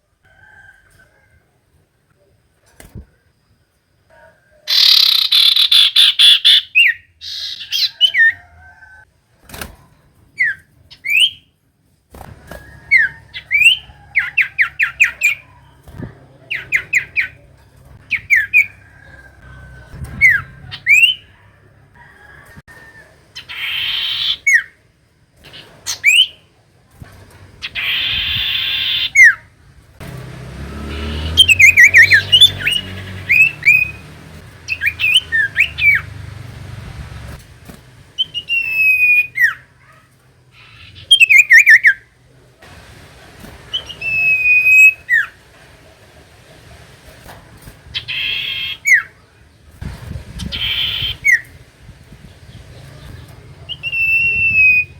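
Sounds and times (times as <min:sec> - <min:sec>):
harsh buzzing bird chatters: 0:04.7 - 0:08.2, 0:12.9 - 0:18.8, 0:27.6 - 0:29.4, 0:30.7 - 0:36.2, 0:47.9 - 0:49.2, 0:50.3 - 0:51.6
bird whistles and trilled chirps: 0:10.4 - 0:11.5, 0:12.9 - 0:15.4, 0:38.2 - 0:39.6.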